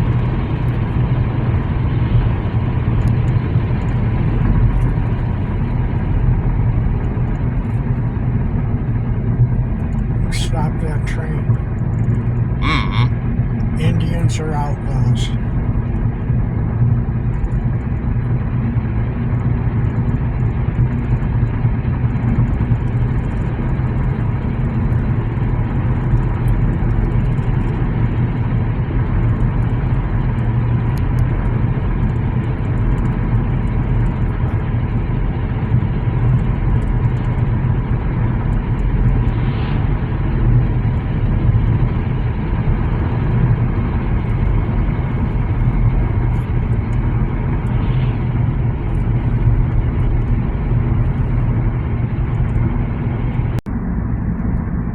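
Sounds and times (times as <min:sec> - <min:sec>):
diesel freight train rumble: 0:00.0 - 0:17.3, 0:37.0 - 0:54.9.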